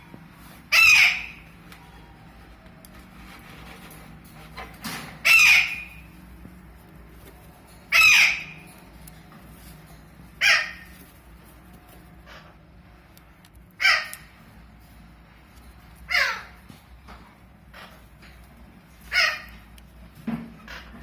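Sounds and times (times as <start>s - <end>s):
parakeet screeching squawks: 0.7s - 1.5s, 5.2s - 6.1s, 7.9s - 8.7s, 10.4s - 10.9s, 13.8s - 14.3s, 16.1s - 16.6s, 19.0s - 19.6s.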